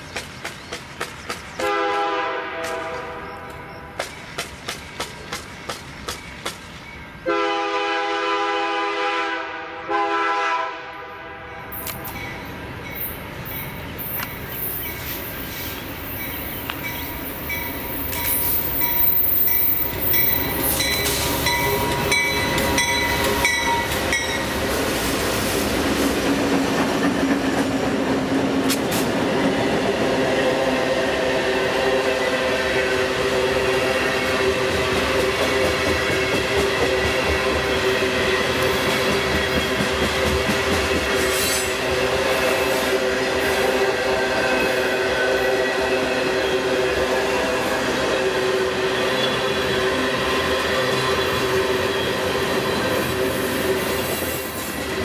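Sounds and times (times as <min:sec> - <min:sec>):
train wheels rumbling over rails: 0:00.0 - 0:07.3, 0:11.7 - 0:55.0
locomotive horn blasts: 0:01.6 - 0:03.5, 0:07.2 - 0:11.7.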